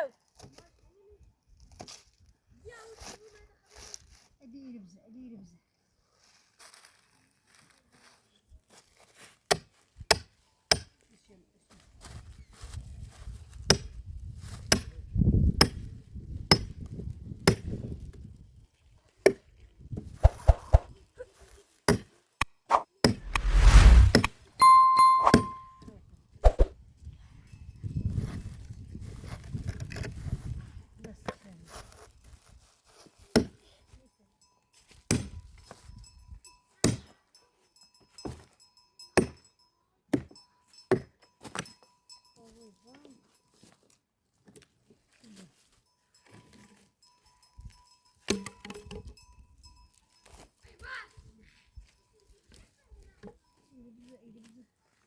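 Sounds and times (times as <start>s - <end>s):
low rumble: 23.2s - 24.3s.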